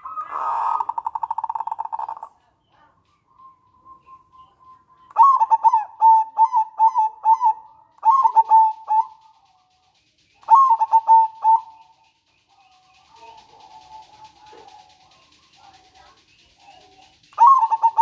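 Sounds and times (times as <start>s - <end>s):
dove cooing: 0.0s - 2.5s, 5.0s - 9.4s, 10.4s - 12.0s, 12.6s - 18.0s.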